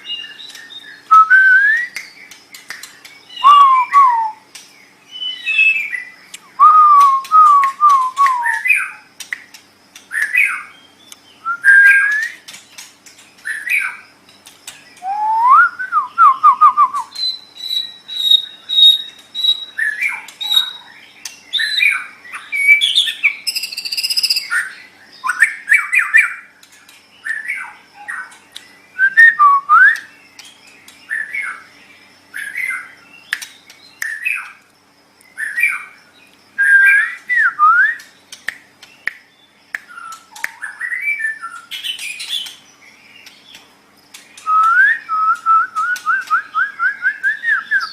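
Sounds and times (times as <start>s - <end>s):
songbird whistling varied phrases: 0.1s - 2.1s, 3.3s - 4.4s, 5.1s - 9.0s, 11.4s - 12.4s, 15.0s - 20.8s, 21.6s - 26.4s, 29.0s - 30.1s, 36.6s - 38.1s, 44.4s - 47.9s.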